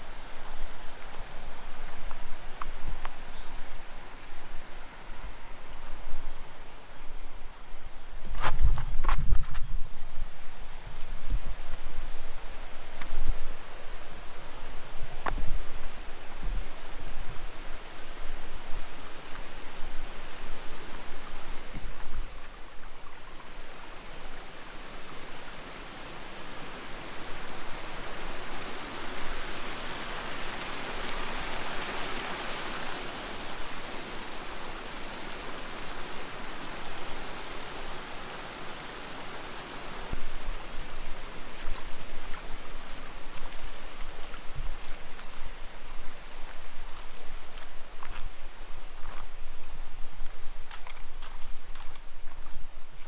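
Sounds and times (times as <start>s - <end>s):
stream water rushing: 11.6s - 52.4s.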